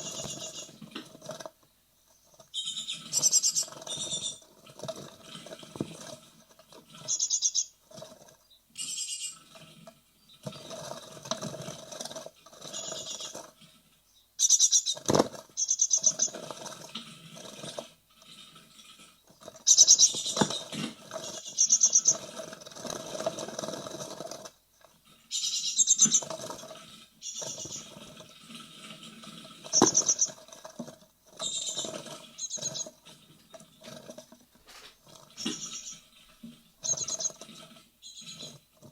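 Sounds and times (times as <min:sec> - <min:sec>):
nestlings calling: 0:00.0 - 0:00.8, 0:02.5 - 0:04.4, 0:07.0 - 0:07.8, 0:08.8 - 0:09.4, 0:12.6 - 0:13.4, 0:14.4 - 0:16.4, 0:19.4 - 0:22.3, 0:25.3 - 0:26.5, 0:27.2 - 0:28.1, 0:29.7 - 0:30.4, 0:31.4 - 0:33.0, 0:34.8 - 0:36.2, 0:36.8 - 0:38.6
chicks scratching and scrabbling: 0:00.0 - 0:08.6, 0:09.3 - 0:38.9.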